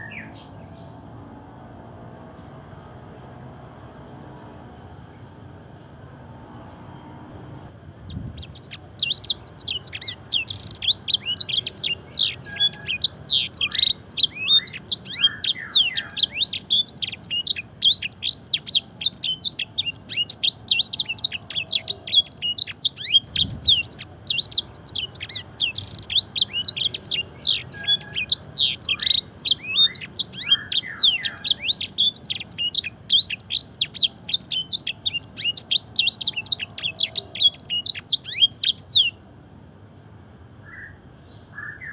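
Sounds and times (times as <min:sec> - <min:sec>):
canary singing: 0:00.0 - 0:01.0, 0:08.1 - 0:39.2, 0:40.6 - 0:41.9.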